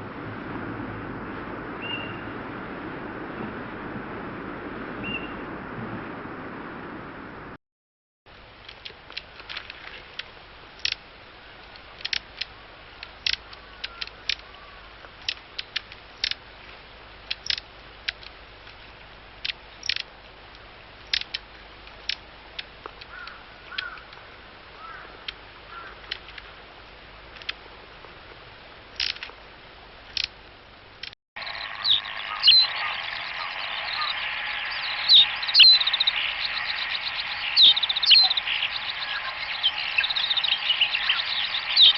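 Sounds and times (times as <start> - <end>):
bird song: 1.8 - 2.4, 5.0 - 5.5, 31.4 - 41.9
background hiss: 8.3 - 41.9
bird giving sharp call notes: 31.5 - 41.9.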